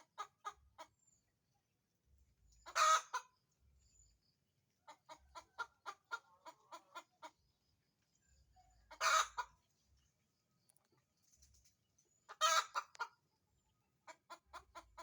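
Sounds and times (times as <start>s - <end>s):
hen clucking: 0.0s - 1.1s, 2.5s - 3.6s, 4.8s - 7.6s, 8.8s - 9.7s, 10.8s - 13.4s, 14.0s - 15.0s.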